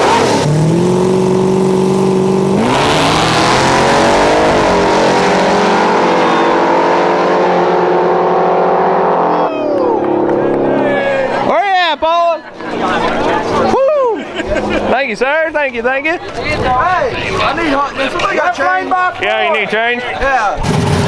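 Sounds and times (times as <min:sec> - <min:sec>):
drag race car engine revving: 0:00.0 - 0:11.5, 0:20.6 - 0:21.0.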